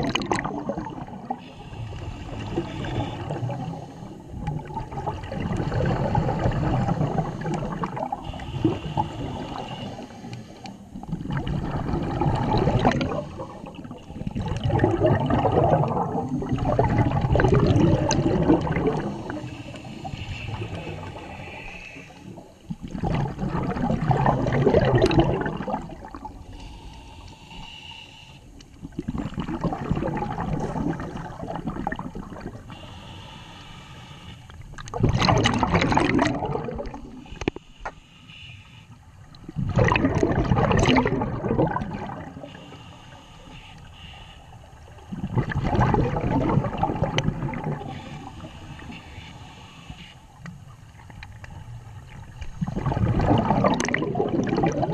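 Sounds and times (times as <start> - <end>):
gurgling exhaled bubbles: 0.0 - 26.5, 28.7 - 32.7, 34.7 - 37.6, 39.2 - 42.7, 44.9 - 48.9, 52.0 - 54.9
diver breathing through regulator: 6.5 - 10.9, 18.6 - 22.6, 25.1 - 28.6, 32.7 - 34.6, 42.0 - 45.4, 47.0 - 50.7.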